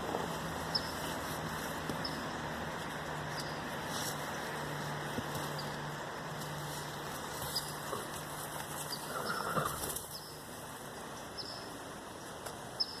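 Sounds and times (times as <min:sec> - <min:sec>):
animal scuffling in dirt: 0:00.0 - 0:10.3.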